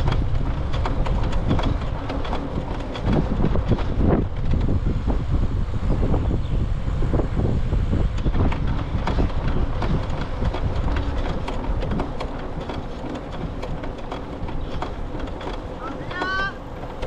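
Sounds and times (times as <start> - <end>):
bicycle clicks and rattles: 0.0 - 5.3, 7.9 - 17.0
bicycle rolling rumble: 0.0 - 17.0
wind buffeting microphone: 0.0 - 17.0.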